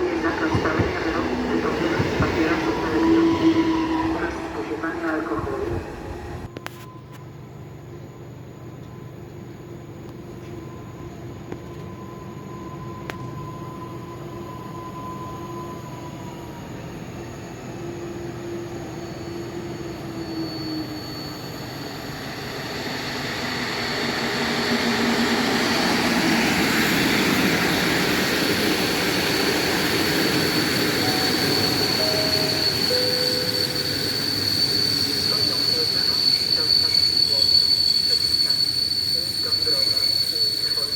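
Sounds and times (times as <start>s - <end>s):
train running into station: 0.0s - 40.9s
high squeal of wheels or brakes: 10.3s - 40.9s.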